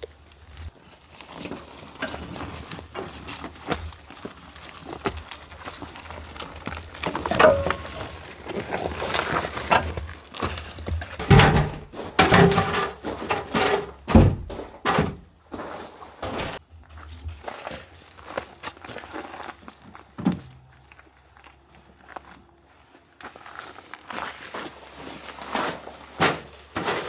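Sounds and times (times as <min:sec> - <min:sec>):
scraping and rustling: 0:00.4 - 0:19.7, 0:24.3 - 0:27.0
dull thuds and knocks: 0:11.0 - 0:15.3.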